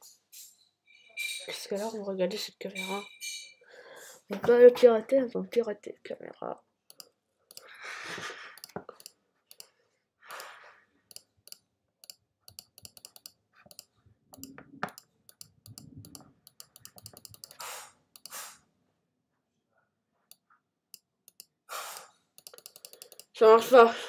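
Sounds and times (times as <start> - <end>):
keyboard keystroke clicks: 11.1 - 17.6, 22.4 - 23.3.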